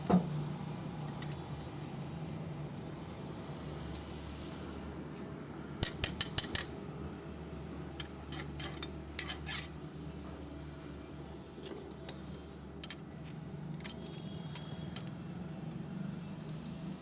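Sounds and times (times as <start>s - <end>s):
metal tools clinking: 5.8s - 6.8s, 8.0s - 9.8s.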